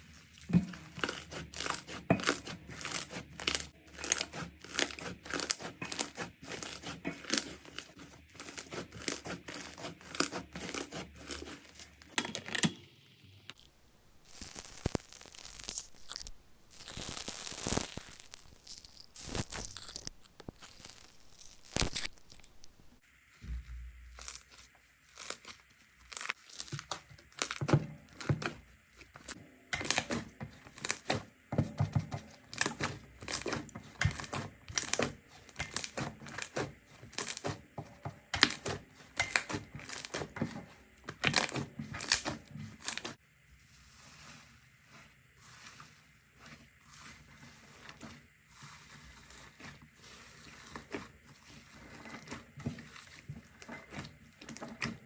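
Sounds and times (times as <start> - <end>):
slime squishing with pops: 0.4 - 11.4, 13.5 - 23.0.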